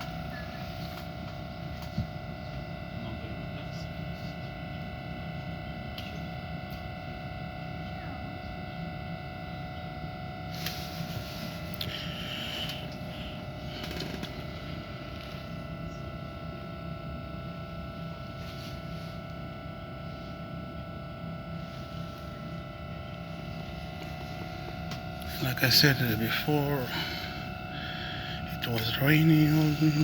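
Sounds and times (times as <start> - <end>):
train carriage hum: 0.0 - 30.0.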